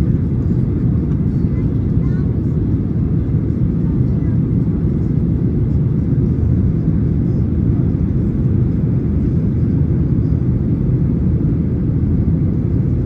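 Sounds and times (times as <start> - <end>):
jet engine rumble in cabin: 0.0 - 13.0.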